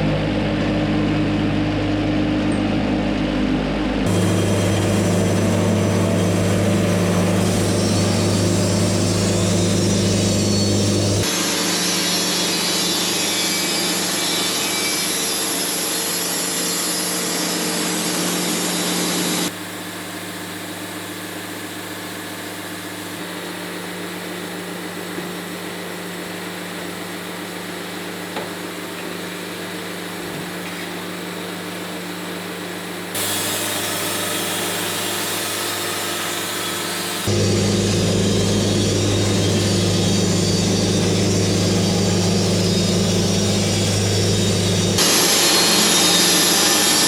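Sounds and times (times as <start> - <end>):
engine drone: 0.0 - 14.8, 31.9 - 47.0.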